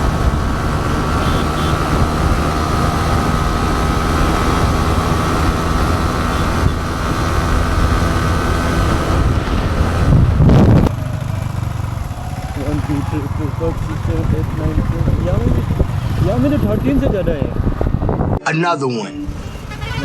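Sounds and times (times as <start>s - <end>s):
wind noise on microphone: 0.0s - 11.2s, 14.0s - 18.4s
motorcycle engine running: 0.0s - 18.4s.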